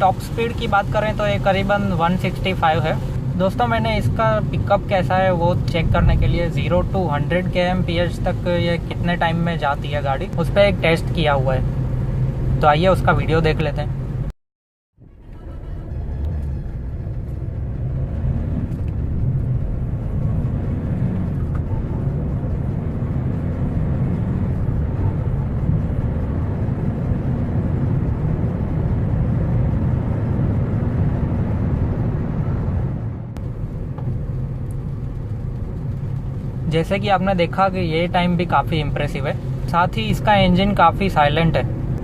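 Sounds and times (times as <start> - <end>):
car engine accelerating: 15.0 - 42.0.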